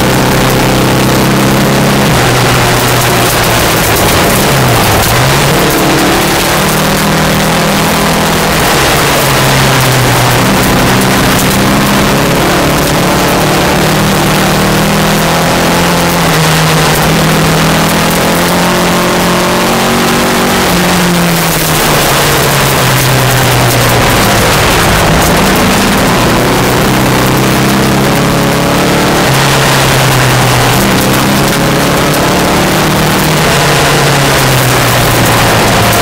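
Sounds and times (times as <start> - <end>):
car engine revving: 0.0 - 36.0
gravel road noise hiss: 2.0 - 19.3, 20.0 - 36.0.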